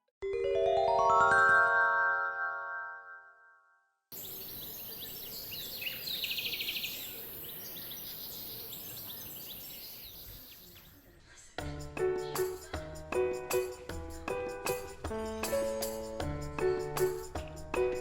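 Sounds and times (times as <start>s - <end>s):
chime jingle: 0.2s - 3.6s
small birds chirping: 4.1s - 12.9s
steady background hiss: 4.2s - 11.2s.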